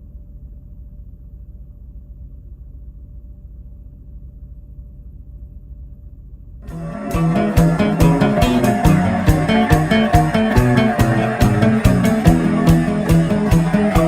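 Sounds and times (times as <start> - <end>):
low steady rumble: 0.0 - 6.6.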